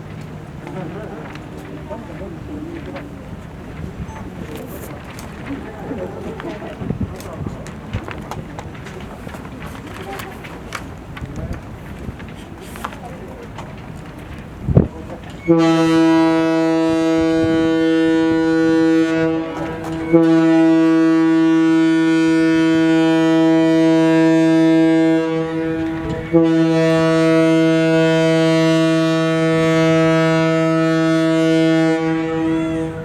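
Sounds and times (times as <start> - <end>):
ship's horn blasts: 15.4 - 33.0.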